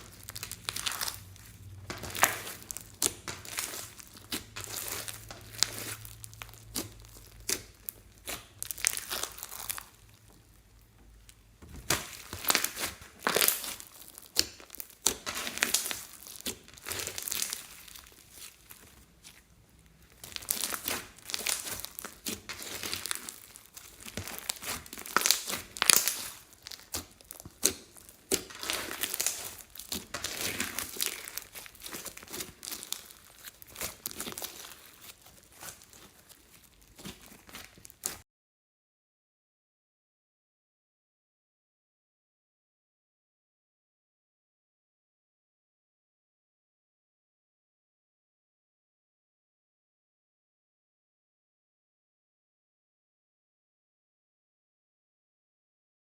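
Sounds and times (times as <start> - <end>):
slime squeezed by hand: 20.2 - 38.2.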